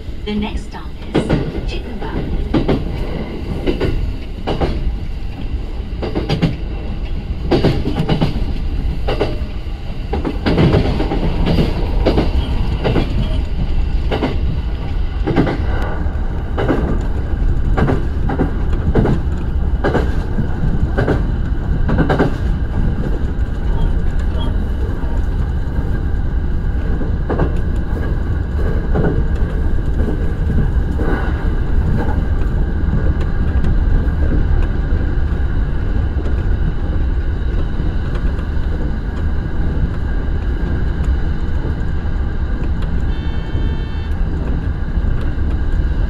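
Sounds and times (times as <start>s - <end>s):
train rumble from inside: 0.0s - 46.0s
wheels clacking over rail joints: 1.0s - 26.0s, 26.7s - 35.2s.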